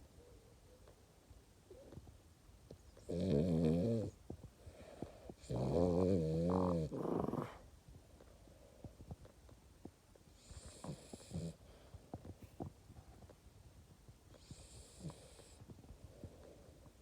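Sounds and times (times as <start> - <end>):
dog snoring: 3.0 - 7.6, 10.4 - 11.8, 14.3 - 15.7.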